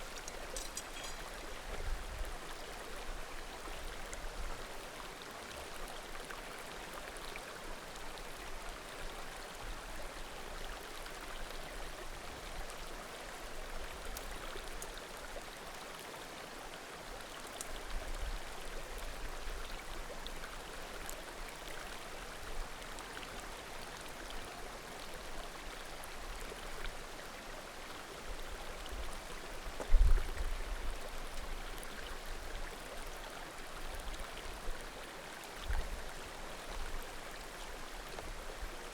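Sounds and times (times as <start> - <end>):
firewood crackling: 0.0 - 1.2.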